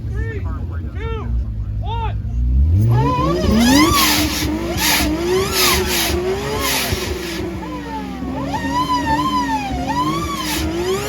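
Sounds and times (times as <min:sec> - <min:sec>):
car engine revving: 0:00.0 - 0:11.0
turbo whistle: 0:02.9 - 0:11.0.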